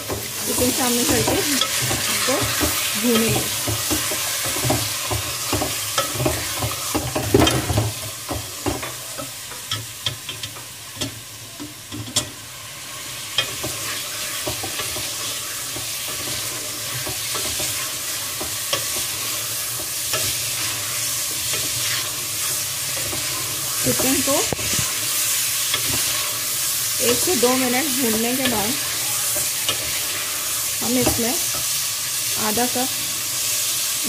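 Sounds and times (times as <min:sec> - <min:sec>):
spatula knocking and scraping pot: 0:00.0 - 0:11.2, 0:13.3 - 0:20.9
chicken sizzling in hot oil: 0:00.0 - 0:34.0.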